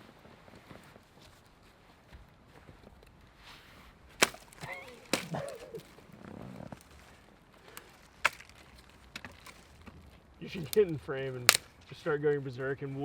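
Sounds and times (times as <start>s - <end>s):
firewood being chopped: 4.1s - 11.9s.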